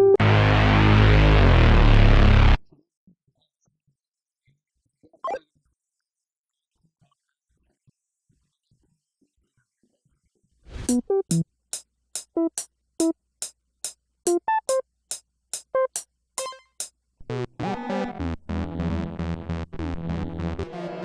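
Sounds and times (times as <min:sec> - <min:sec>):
plucked synthesizer notes: 0:00.0 - 0:02.6, 0:10.9 - 0:11.4, 0:15.8 - 0:20.6
sustained synth chord with deep bass: 0:00.0 - 0:02.6.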